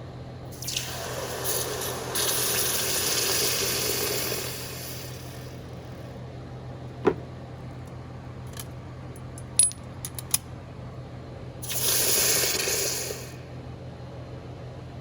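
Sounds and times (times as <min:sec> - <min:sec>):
hiss: 0:00.6 - 0:05.7, 0:11.6 - 0:13.4
metal piece knocking: 0:07.0 - 0:07.3.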